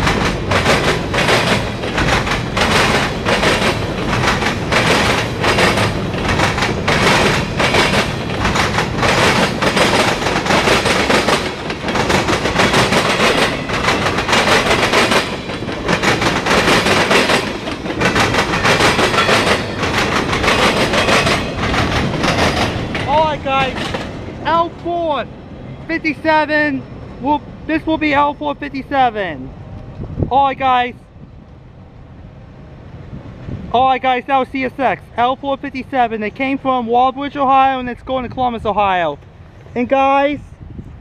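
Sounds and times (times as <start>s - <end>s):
train wheels clattering over track: 0.0s - 25.8s.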